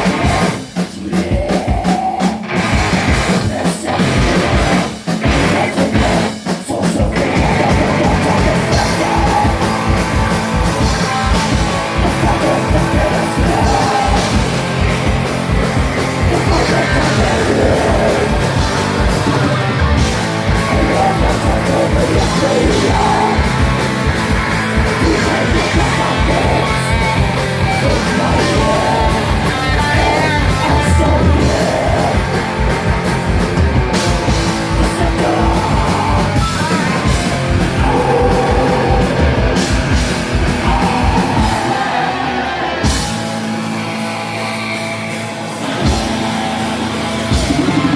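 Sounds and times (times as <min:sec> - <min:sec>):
live heavy rock band: 0:00.0 - 0:47.9
steady drum beat: 0:00.0 - 0:47.9
shouted vocals: 0:07.1 - 0:15.2, 0:16.0 - 0:32.6, 0:34.8 - 0:44.7, 0:45.6 - 0:47.9.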